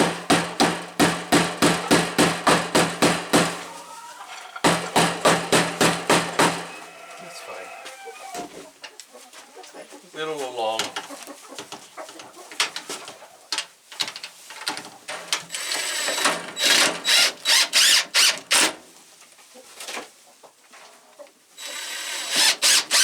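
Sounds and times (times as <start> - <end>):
cordless drill driving screws: 15.7 - 18.6, 21.7 - 23.0.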